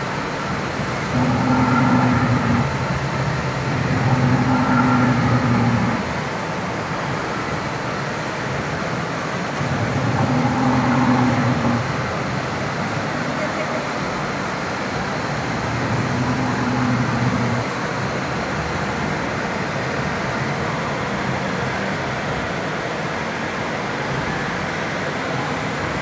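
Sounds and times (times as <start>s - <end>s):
steady background noise: 0.0s - 26.0s
recorded dinosaur calls over loudspeakers: 1.0s - 6.1s, 9.6s - 12.0s, 15.5s - 17.7s.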